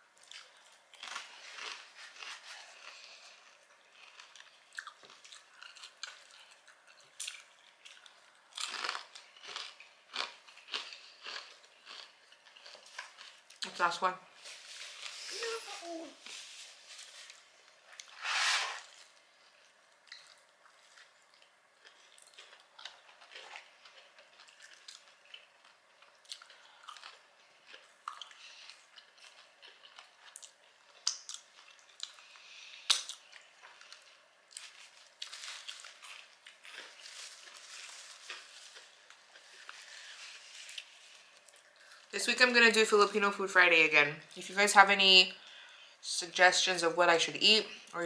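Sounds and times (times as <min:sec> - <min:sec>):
chewing with small crunches: 0:00.0 - 0:18.2, 0:18.8 - 0:42.2
loud crunch of crispy bite: 0:00.3 - 0:06.5, 0:07.2 - 0:13.7, 0:33.9 - 0:41.6.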